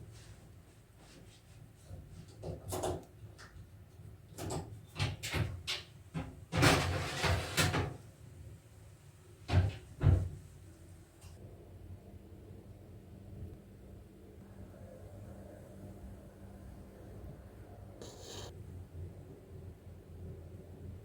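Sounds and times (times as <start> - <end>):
scraping or rustling: 6.6 - 8.0.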